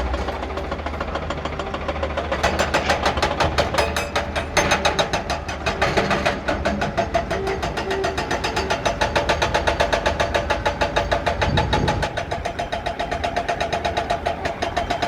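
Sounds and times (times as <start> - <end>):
diesel engine clattering: 0.0 - 15.0.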